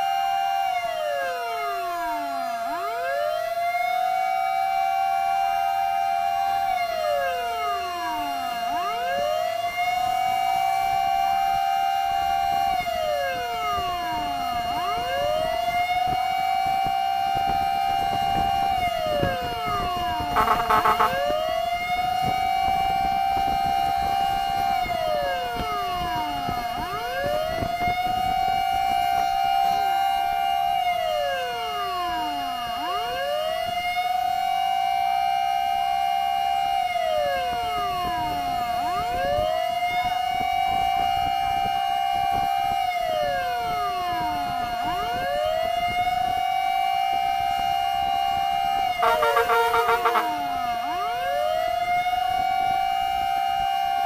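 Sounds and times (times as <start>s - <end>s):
fire engine wail siren: 0.0s - 54.0s
steady siren tone: 0.0s - 54.0s
horn blasts: 20.2s - 21.4s, 48.9s - 51.0s.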